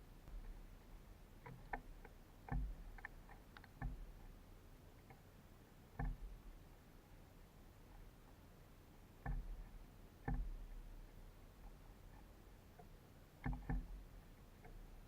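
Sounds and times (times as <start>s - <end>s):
birds tapping on wire feeder: 1.4s - 4.2s, 5.9s - 6.4s, 9.2s - 10.7s, 13.4s - 15.0s.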